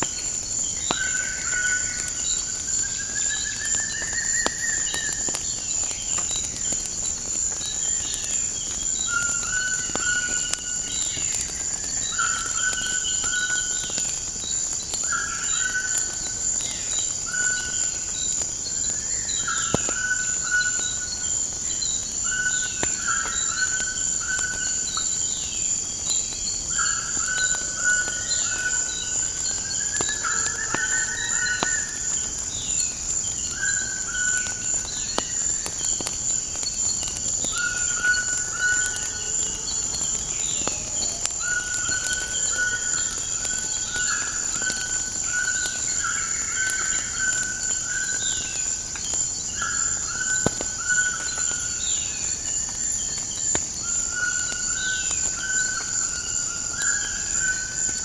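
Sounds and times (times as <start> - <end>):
wood fire crackle: 0.0 - 58.0
birds calling and chirping: 33.5 - 52.4.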